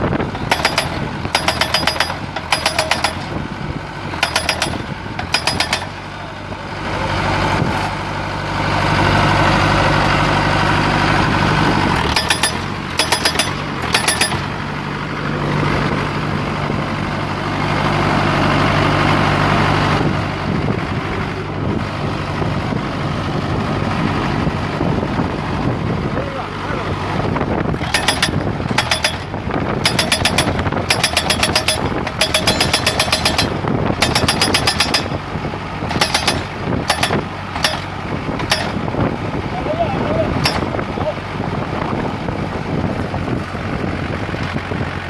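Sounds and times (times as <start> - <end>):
pile driver engine running: 0.0 - 45.0
pile driver hammer strikes: 0.4 - 3.4, 4.2 - 6.0, 12.1 - 14.6, 27.8 - 35.2, 35.9 - 38.9, 40.4 - 40.8.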